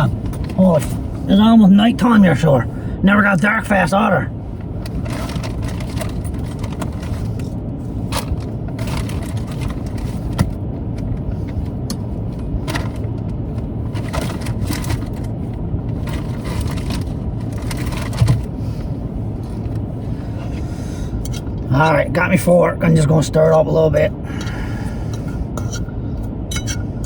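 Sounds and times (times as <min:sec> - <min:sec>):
car engine idling: 0:00.0 - 0:27.0
rummaging through supplies: 0:04.9 - 0:10.6, 0:12.6 - 0:13.1, 0:13.9 - 0:19.8
crinkling: 0:13.9 - 0:18.6.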